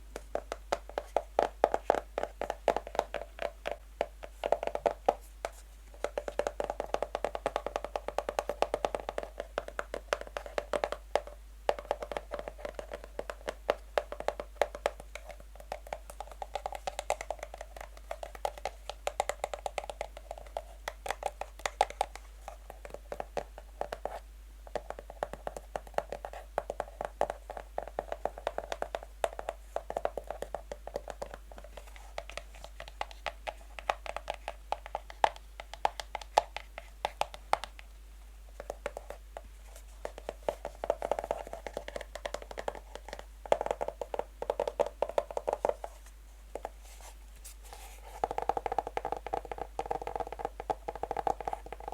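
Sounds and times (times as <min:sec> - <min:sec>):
fingernails tapping on box: 0:40.0 - 0:46.8, 0:48.1 - 0:51.9.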